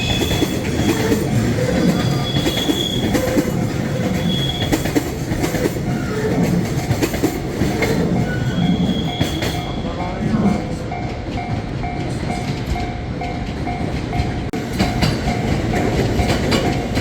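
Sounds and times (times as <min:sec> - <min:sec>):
high-pitched wheel squeals: 0:00.0 - 0:05.2, 0:08.2 - 0:10.1
train wheels rumbling and clicking: 0:00.0 - 0:17.0.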